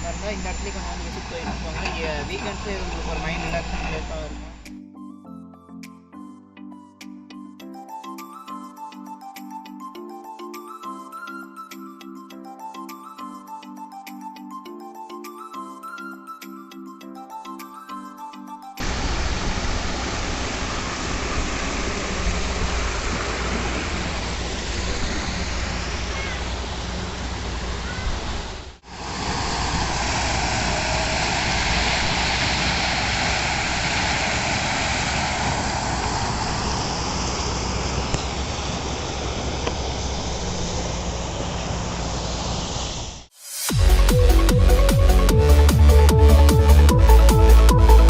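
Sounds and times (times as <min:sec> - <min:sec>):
water rushing over a weir: 0:00.0 - 0:04.7, 0:18.8 - 0:43.3.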